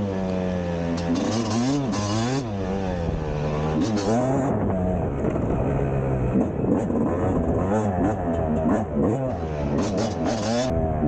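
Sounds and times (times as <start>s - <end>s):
two-stroke motorcycle engine revving: 0.0s - 11.0s.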